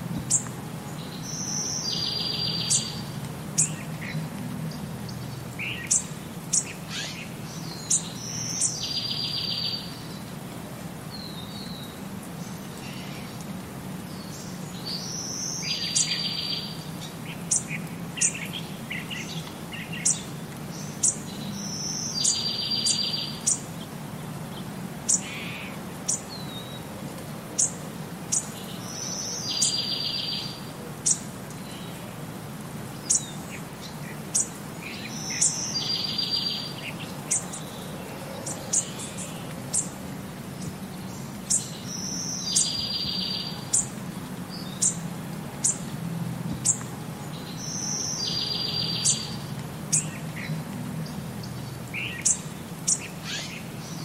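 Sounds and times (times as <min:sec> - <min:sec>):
birds chirping: 0:00.2 - 0:10.5, 0:11.1 - 0:26.9, 0:27.5 - 0:54.0
bird song with buzzy trill: 0:34.3 - 0:37.8, 0:40.6 - 0:43.9.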